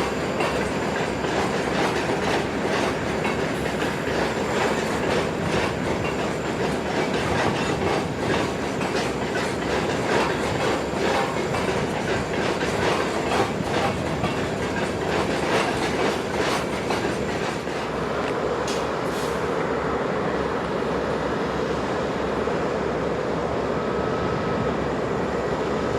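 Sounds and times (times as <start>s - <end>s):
wheels clicking over rail joints: 0.0s - 19.2s
freight train rumble: 0.0s - 25.9s.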